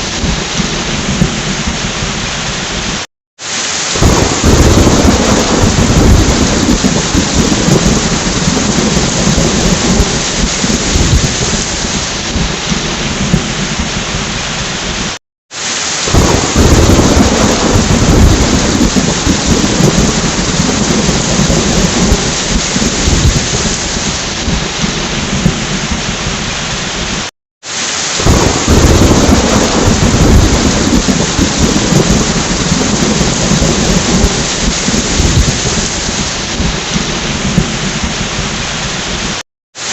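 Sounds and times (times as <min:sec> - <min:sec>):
thunder rumbling: 0:00.0 - 0:03.0, 0:04.0 - 0:15.2, 0:16.1 - 0:27.3, 0:28.2 - 0:39.4
heavy rain hissing: 0:00.0 - 0:39.9.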